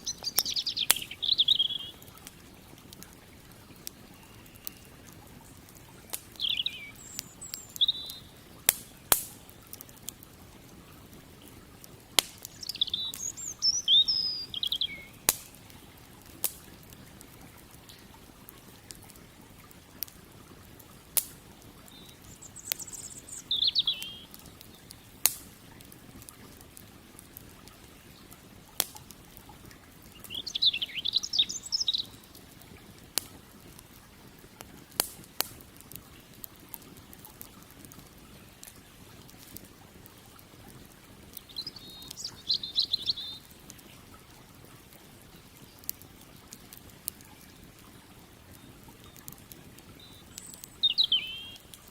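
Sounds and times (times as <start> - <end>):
songbird chirping: 0.0 - 2.3, 3.5 - 9.7, 12.3 - 15.8, 21.8 - 25.2, 30.1 - 32.4, 41.4 - 43.6, 49.9 - 51.8
campfire crackling and popping: 0.0 - 51.9.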